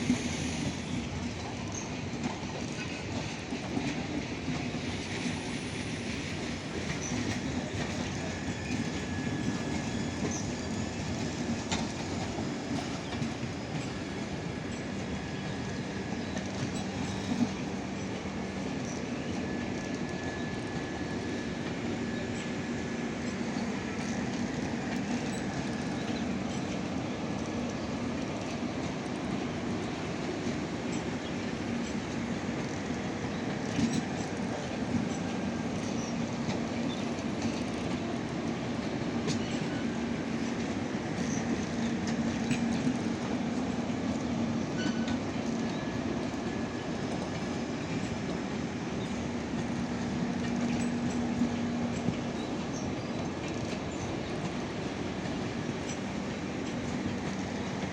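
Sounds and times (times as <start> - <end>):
train rumbling along track: 0.0 - 57.9.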